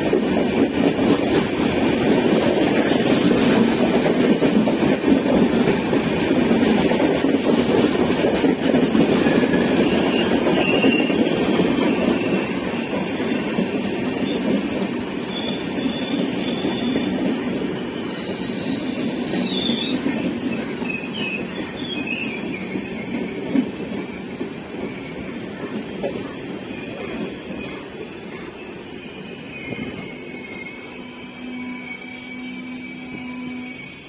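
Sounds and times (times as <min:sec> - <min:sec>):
train wheels rumbling on rails: 0:00.0 - 0:34.0
high-pitched squeals: 0:26.3 - 0:34.0.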